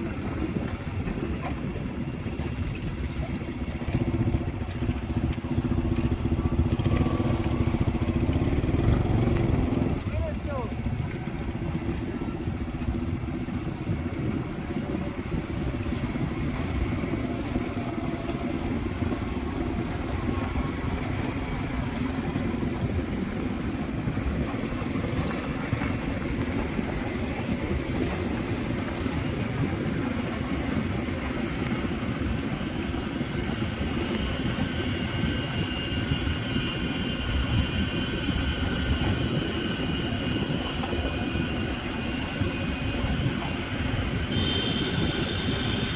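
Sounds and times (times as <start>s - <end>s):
motorbike engine running: 0.0s - 45.9s
wind and road noise: 0.0s - 45.9s
shrill high-pitched whine: 15.6s - 45.9s.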